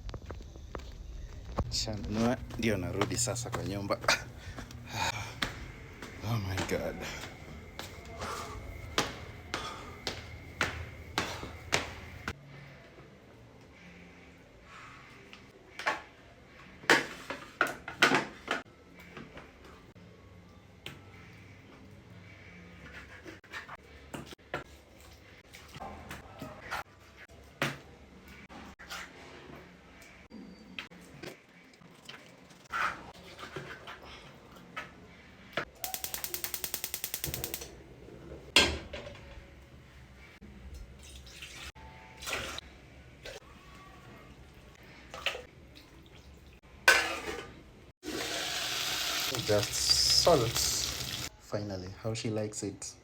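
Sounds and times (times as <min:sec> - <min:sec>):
rapid mechanical clicks: 0:35.9 - 0:37.7.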